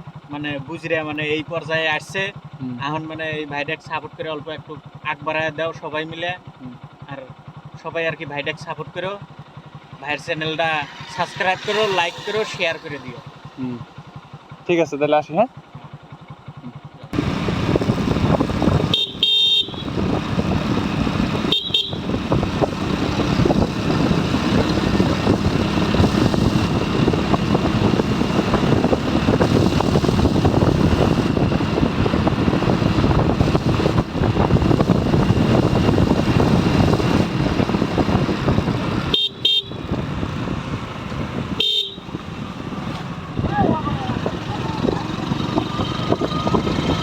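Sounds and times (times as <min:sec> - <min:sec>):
motorcycle engine riding: 0:00.0 - 0:47.0
motorcycle horn short beeps: 0:18.7 - 0:20.1, 0:21.4 - 0:22.3, 0:39.0 - 0:40.0, 0:41.5 - 0:42.2.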